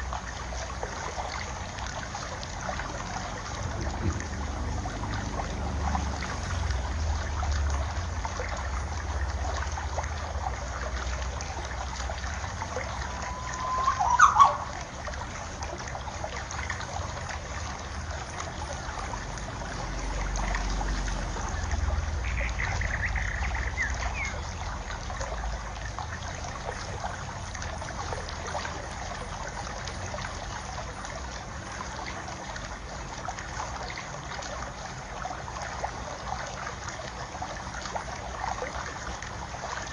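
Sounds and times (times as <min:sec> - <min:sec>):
water trickling: 0:00.0 - 0:39.9
wind on microphone: 0:03.6 - 0:04.6
bird chirps: 0:13.3 - 0:14.6.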